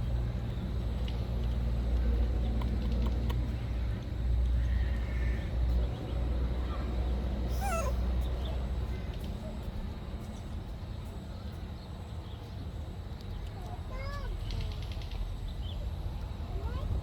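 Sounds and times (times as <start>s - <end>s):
steady low rumble: 0.0s - 11.1s
young monkey squealing: 7.5s - 8.0s.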